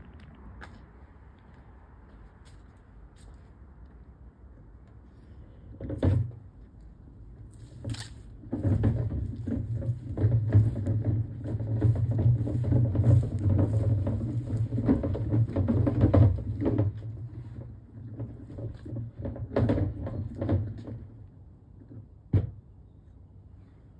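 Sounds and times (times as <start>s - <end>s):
train rumbling and rattling: 8.5s - 20.6s.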